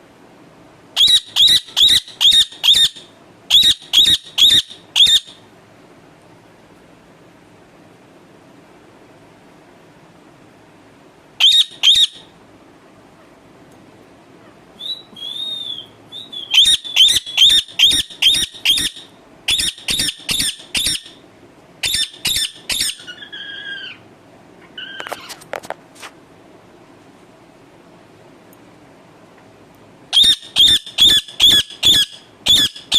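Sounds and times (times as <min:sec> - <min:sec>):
parakeet screeching: 0:01.0 - 0:05.4, 0:11.4 - 0:12.3, 0:14.8 - 0:21.2, 0:21.8 - 0:24.0, 0:24.7 - 0:25.4, 0:30.1 - 0:32.9.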